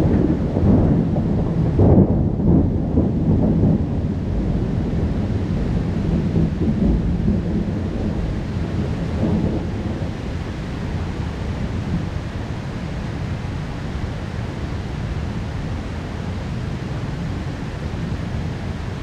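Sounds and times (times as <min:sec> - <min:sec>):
thunder rumbling: 0:00.0 - 0:13.5.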